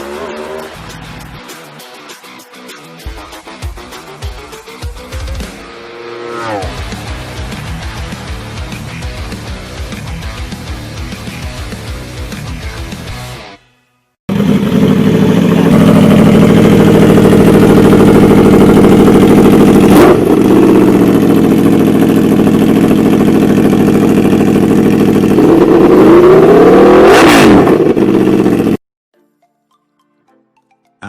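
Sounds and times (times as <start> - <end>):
motorcycle engine revving: 0.0 - 0.9, 4.9 - 12.2, 14.3 - 28.8.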